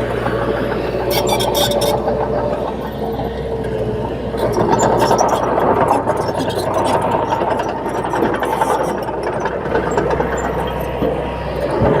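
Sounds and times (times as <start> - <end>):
bulldozer diesel engine running: 0.0 - 12.0
wavering squeal: 1.1 - 2.0.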